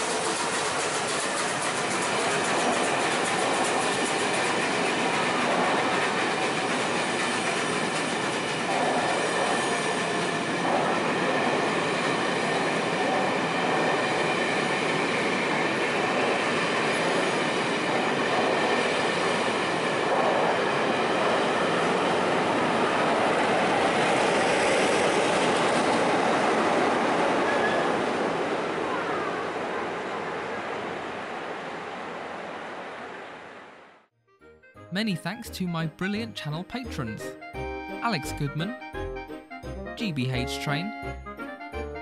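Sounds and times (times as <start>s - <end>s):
train wheels rushing on rail: 0.0s - 26.8s.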